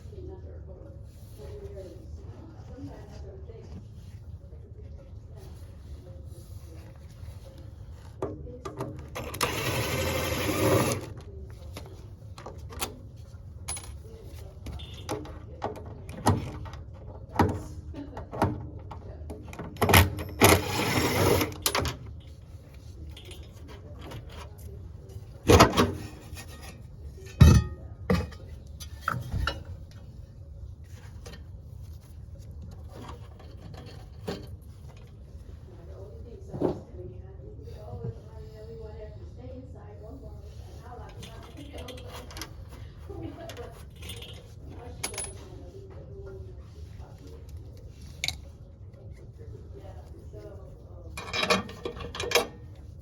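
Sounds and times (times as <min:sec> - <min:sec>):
tools clicking and knocking on metal: 0:14.7 - 0:22.3, 0:43.5 - 0:45.4, 0:51.2 - 0:52.8.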